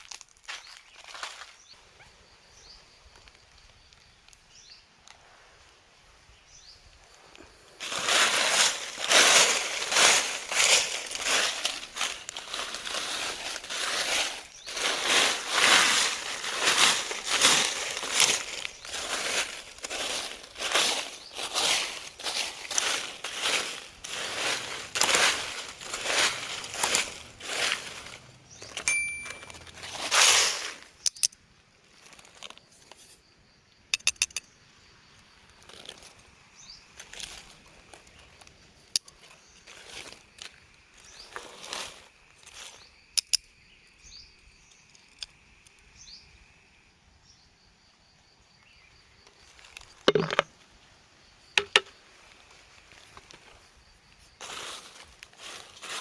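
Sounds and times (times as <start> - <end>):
leaves rustling and crunching: 0.0 - 1.8, 6.9 - 31.0, 31.8 - 33.2, 35.5 - 43.1, 52.0 - 56.0
sharp clicks: 33.9 - 34.5.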